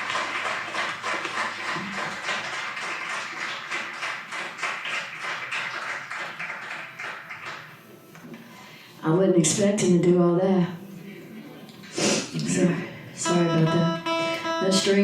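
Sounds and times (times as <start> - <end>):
audience clapping: 0.0 - 8.0.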